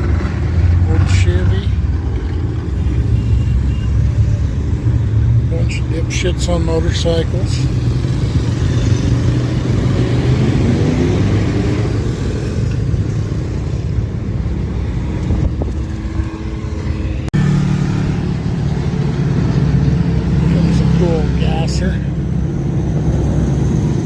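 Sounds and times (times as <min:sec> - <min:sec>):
deep engine hum: 0:00.0 - 0:24.0
motorcycles and cars passing: 0:00.0 - 0:24.0.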